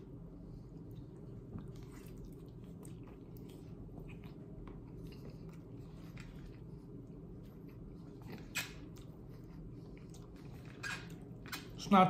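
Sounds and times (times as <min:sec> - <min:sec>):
steady low hum: 0:00.0 - 0:12.0
person chewing noodles: 0:00.7 - 0:11.8.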